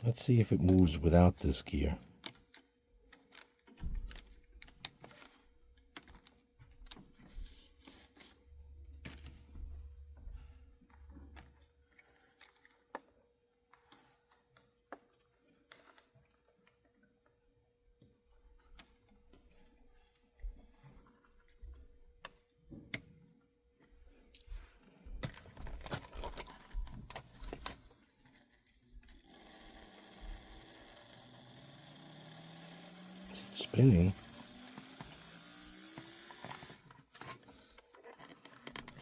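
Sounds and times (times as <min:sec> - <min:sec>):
plastic and metal parts clicking: 0:02.2 - 0:07.2, 0:25.2 - 0:39.0
small electric motor whirring: 0:27.0 - 0:37.0.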